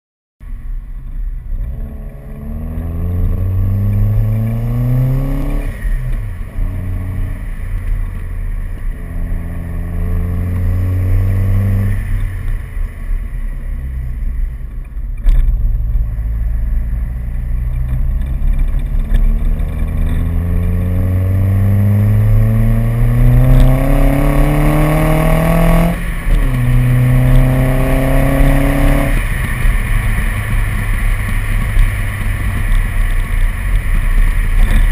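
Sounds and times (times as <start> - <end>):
car engine accelerating: 0.4 - 34.9
gear change pitch drop: 1.0 - 34.9.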